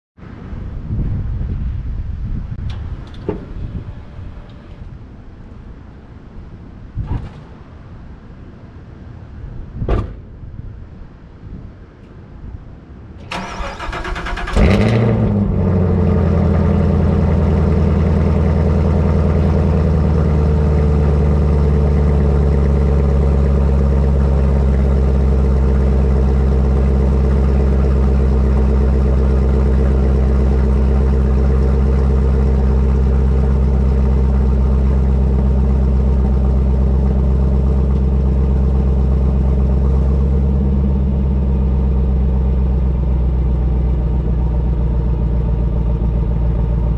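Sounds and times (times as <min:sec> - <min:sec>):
car starter cranking: 0:13.2 - 0:15.6
car engine idling: 0:13.2 - 0:46.9.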